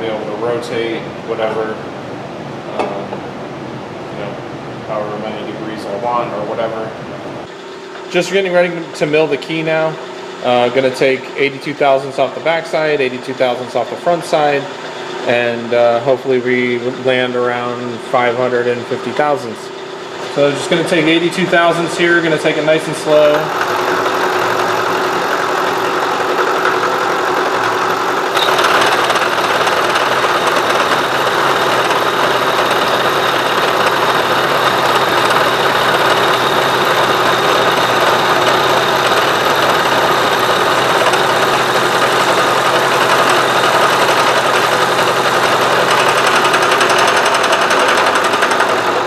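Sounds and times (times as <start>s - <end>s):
milling machine cutting metal: 20.2s - 49.0s.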